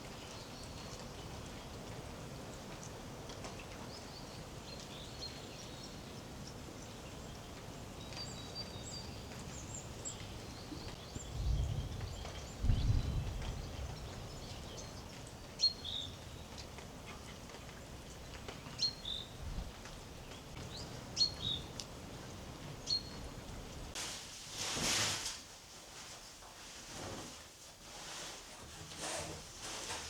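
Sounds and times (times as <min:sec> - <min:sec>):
background hiss: 0:17.9 - 0:30.0.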